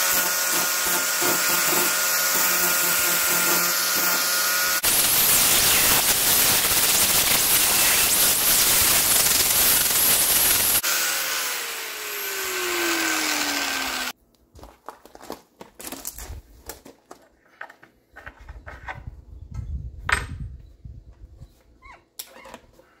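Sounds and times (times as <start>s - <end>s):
electric welding arc crackling: 2.4s - 10.8s.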